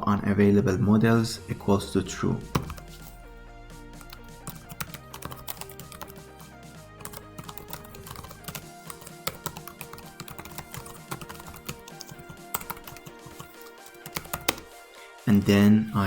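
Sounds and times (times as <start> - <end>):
background music: 0.0 - 16.0
keyboard typing: 2.4 - 3.2, 3.9 - 15.6.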